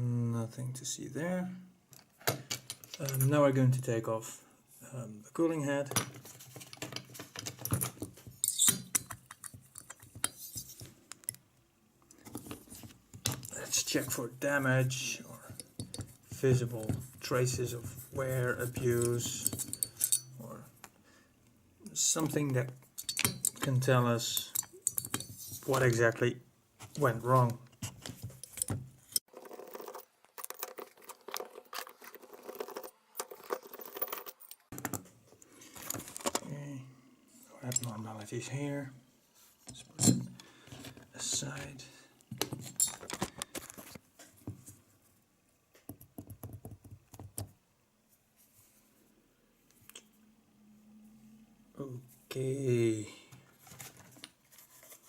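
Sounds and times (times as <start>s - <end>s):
small metal parts clinking: 2.3s - 3.3s, 5.9s - 11.4s, 15.4s - 16.9s, 18.6s - 20.4s, 22.3s - 26.0s, 28.1s - 35.0s, 42.4s - 44.0s.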